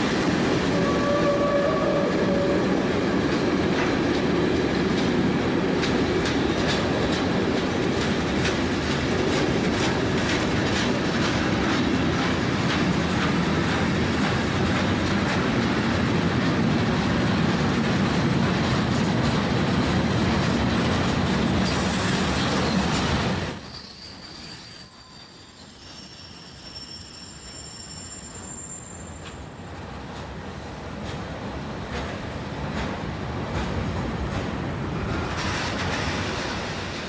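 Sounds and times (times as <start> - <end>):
freight train rumbling on rails: 0.0 - 37.0
high-pitched wheel squeal: 22.7 - 30.0.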